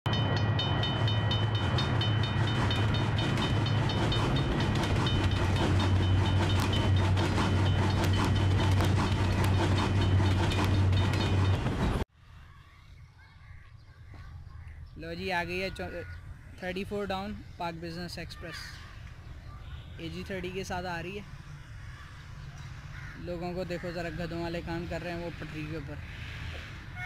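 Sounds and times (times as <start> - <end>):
high ringing: 0.1 - 12.0
wheels clicking over rail joints: 0.1 - 12.0
train rumble: 0.1 - 12.1.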